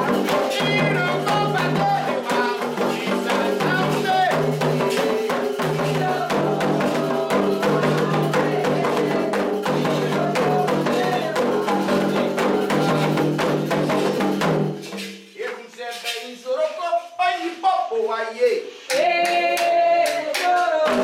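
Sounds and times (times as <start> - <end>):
sung chant with held notes: 0.0 - 13.6
rapid hand drumming: 0.0 - 15.0.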